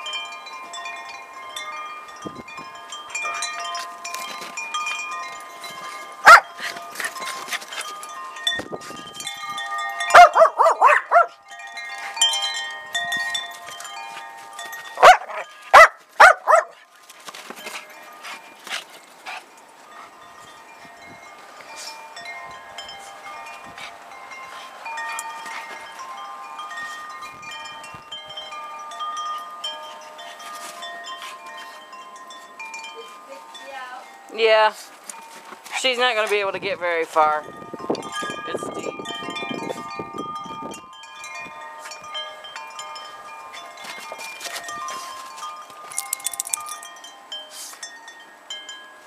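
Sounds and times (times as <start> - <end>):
metal wind chimes ringing: 0.0 - 49.0
small dog barking: 6.2 - 6.5, 10.1 - 11.3, 15.0 - 16.8.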